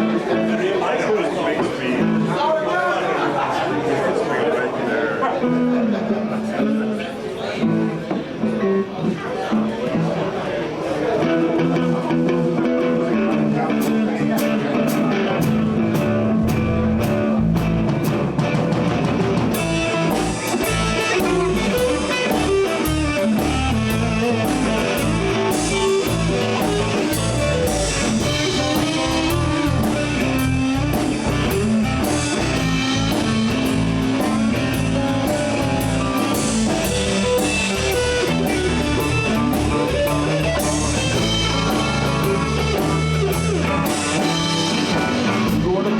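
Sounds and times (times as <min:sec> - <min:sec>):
drums: 0:00.0 - 0:00.8, 0:01.4 - 0:02.4, 0:05.4 - 0:45.9
electric guitar: 0:00.0 - 0:00.8, 0:05.4 - 0:45.9
bass: 0:11.4 - 0:45.9.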